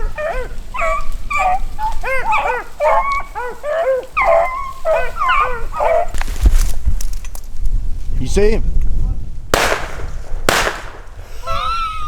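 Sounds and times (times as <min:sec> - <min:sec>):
dogs baying: 0:00.0 - 0:06.2.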